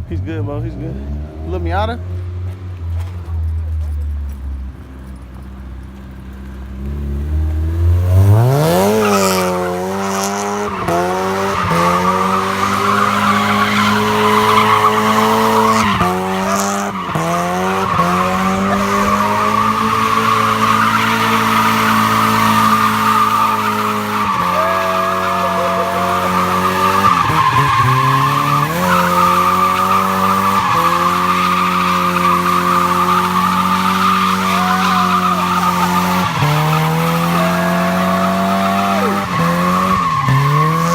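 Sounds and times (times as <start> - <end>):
car engine revving: 6.2 - 40.9
tyres squealing: 8.6 - 40.9.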